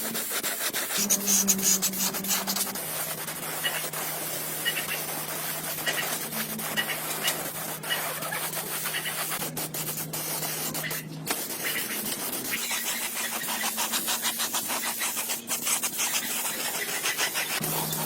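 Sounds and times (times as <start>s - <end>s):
rapid rubbing strokes: 0.0s - 18.0s
steady low hum: 0.9s - 10.5s.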